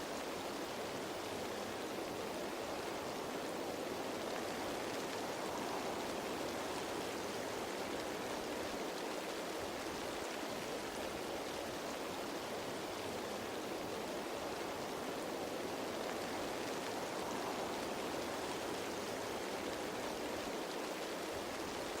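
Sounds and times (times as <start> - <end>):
rain pattering on leaves: 0.0 - 22.0.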